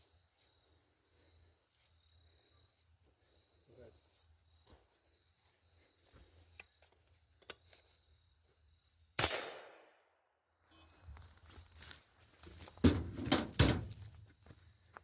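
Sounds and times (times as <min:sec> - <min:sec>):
rifle shot with echo: 0:09.2 - 0:10.0.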